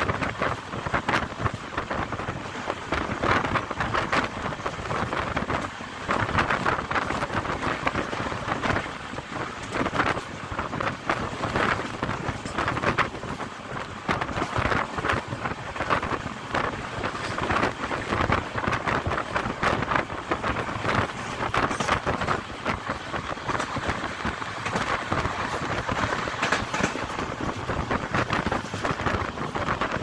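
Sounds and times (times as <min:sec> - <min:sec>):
wheels rattling on rails: 0:00.0 - 0:30.0
wind: 0:00.0 - 0:30.0.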